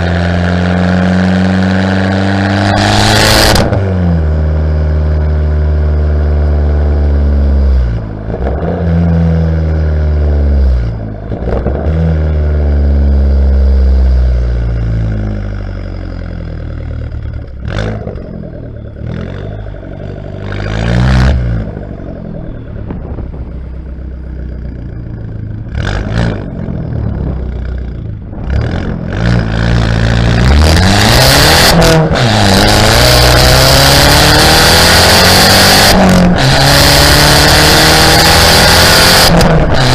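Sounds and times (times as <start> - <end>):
car exhaust revving: 0.0 - 39.9
rushing air noise: 20.6 - 33.1.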